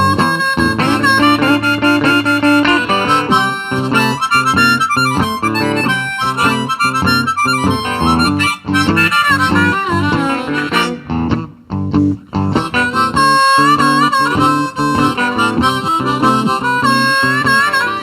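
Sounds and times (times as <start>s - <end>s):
blues harmonica solo: 0.0s - 18.0s
guitar rhythm: 0.0s - 18.0s.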